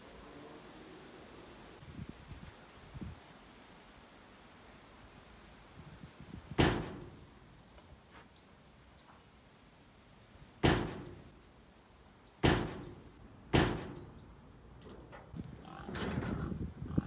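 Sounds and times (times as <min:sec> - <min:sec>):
door slamming: 0:06.6 - 0:07.4, 0:10.6 - 0:11.4, 0:12.4 - 0:16.4.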